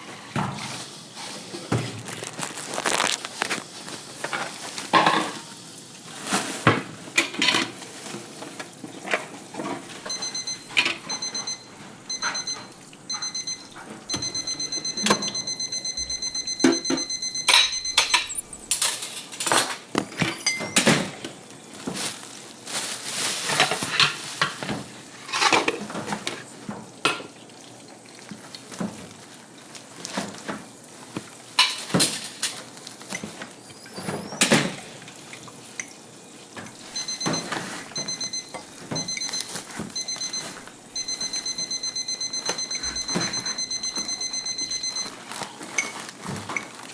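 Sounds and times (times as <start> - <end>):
electronic beeper beeping: 10.0 - 18.8, 37.0 - 45.1
dishes and cutlery clattering: 17.5 - 21.2.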